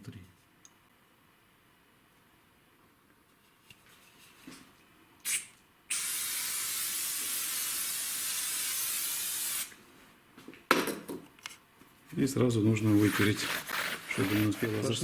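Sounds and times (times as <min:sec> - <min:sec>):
aerosol spray hissing: 0:05.3 - 0:09.7.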